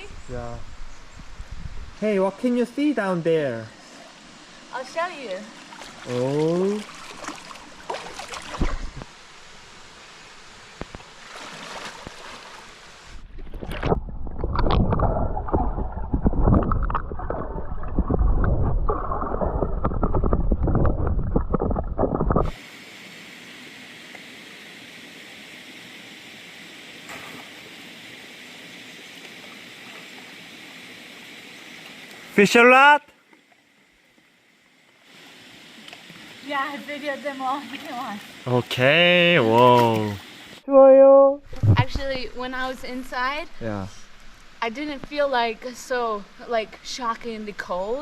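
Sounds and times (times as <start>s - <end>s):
steady hiss: 0.0s - 7.9s, 8.6s - 13.2s, 22.5s - 40.7s, 41.8s - 48.0s
stream water running: 0.0s - 48.0s
muffled underwater rushing and bubbling: 10.8s - 22.6s.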